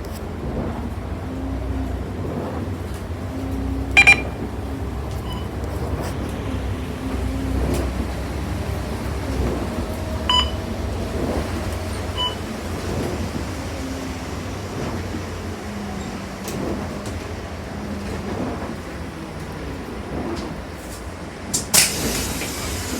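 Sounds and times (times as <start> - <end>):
bus engine rumble: 0.0 - 22.9
road noise: 0.0 - 22.9
short electronic beeps: 4.0 - 4.4, 5.2 - 5.5, 10.3 - 10.6, 12.2 - 12.4.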